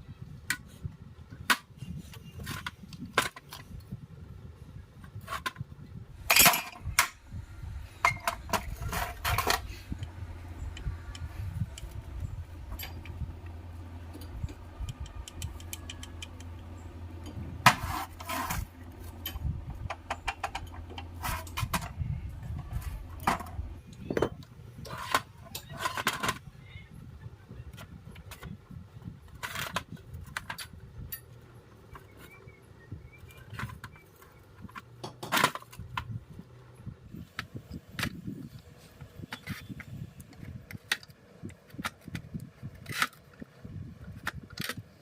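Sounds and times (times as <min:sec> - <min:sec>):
steady low hum: 0:00.0 - 0:45.0
metal parts clinking: 0:06.3 - 0:07.2, 0:08.0 - 0:17.4.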